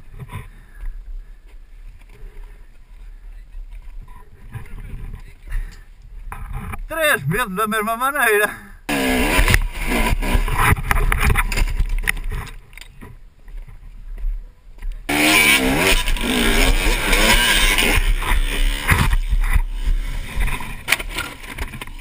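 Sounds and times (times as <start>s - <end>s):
dirt bike engine revving: 8.9s - 10.9s, 15.1s - 22.0s.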